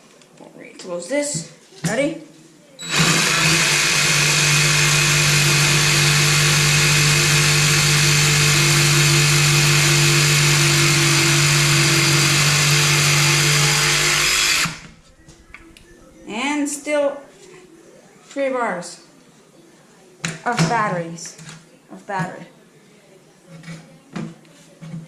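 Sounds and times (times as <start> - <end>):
jigsaw sawing through wood: 2.8 - 14.9.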